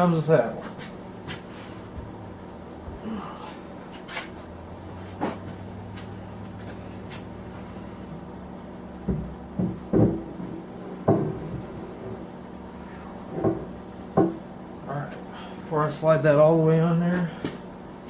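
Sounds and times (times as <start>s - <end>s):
heavy metal dull clunks: 9.0s - 12.2s, 13.2s - 14.5s.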